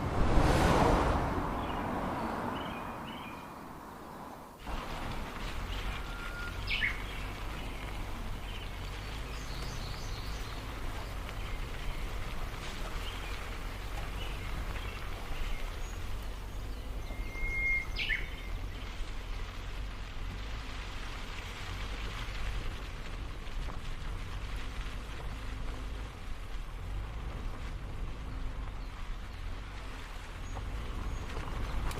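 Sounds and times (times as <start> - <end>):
steady low rumble: 0.0 - 3.8.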